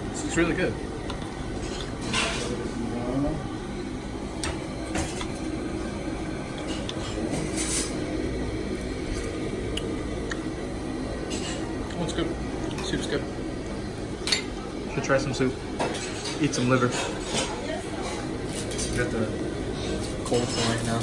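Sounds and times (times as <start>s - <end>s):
low room hum: 0.0s - 21.0s
dishes and cutlery clinking: 1.6s - 2.6s, 6.6s - 8.0s, 14.2s - 14.6s, 15.8s - 19.1s, 19.8s - 21.0s
dishes clattering: 1.6s - 2.7s, 4.4s - 5.4s, 14.2s - 14.6s, 15.7s - 19.1s, 19.8s - 21.0s.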